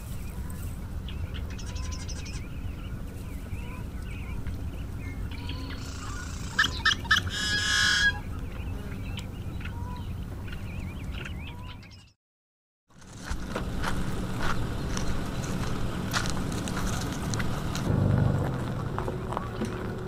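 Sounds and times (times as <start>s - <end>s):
birds chirping: 0.0s - 12.2s, 13.8s - 20.0s
loud bird call with buzzy note: 5.3s - 10.0s.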